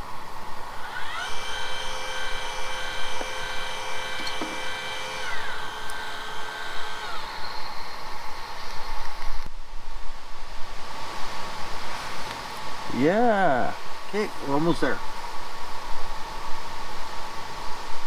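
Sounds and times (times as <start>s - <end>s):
stepper motors whining: 0.0s - 9.5s.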